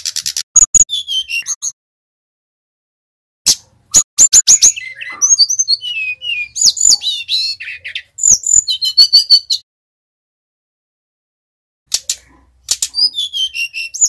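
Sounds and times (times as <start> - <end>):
flycatcher singing: 0.6 - 1.8, 3.9 - 9.6.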